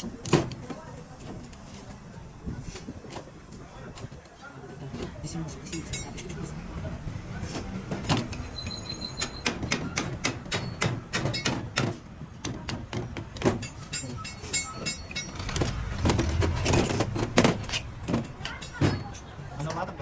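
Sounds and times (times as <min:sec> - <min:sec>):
metal tools clicking and knocking: 0:08.0 - 0:19.9.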